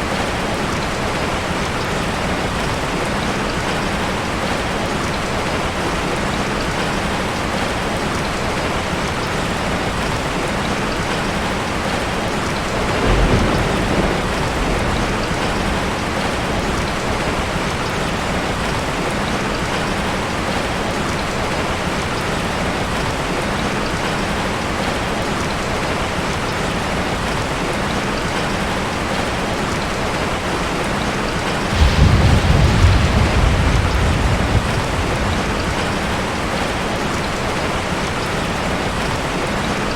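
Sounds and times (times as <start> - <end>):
rain falling: 0.0 - 39.9
thunder rumbling: 12.4 - 19.3, 31.6 - 38.3.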